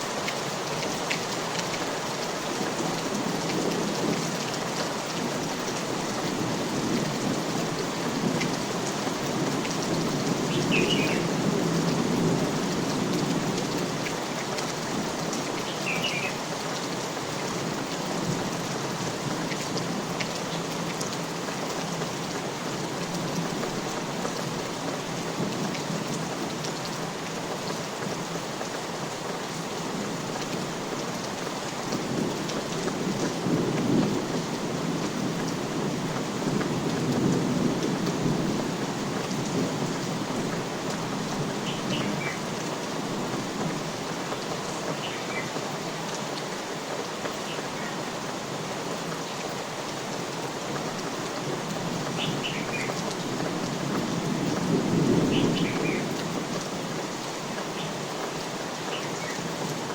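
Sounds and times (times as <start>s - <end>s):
individual raindrops: 0.0s - 59.9s
steady rain falling: 0.0s - 59.9s.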